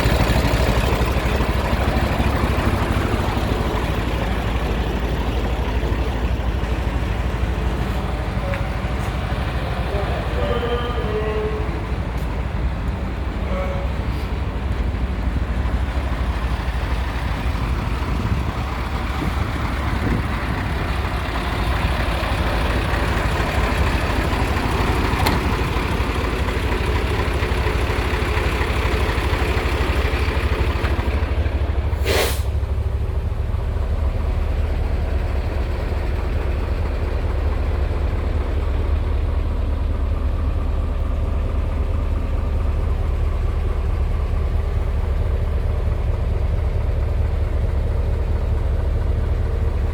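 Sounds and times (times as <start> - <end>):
truck diesel engine running: 0.0 - 49.9
air hiss release: 32.0 - 32.6.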